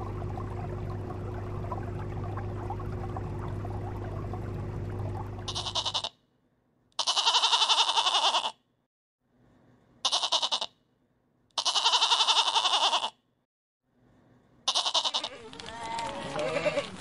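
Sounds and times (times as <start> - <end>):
low hum: 0.0 - 6.0
running water: 0.0 - 6.1
goat bleating: 5.5 - 6.2, 7.0 - 8.6, 10.0 - 10.7, 11.6 - 13.2, 14.7 - 17.0.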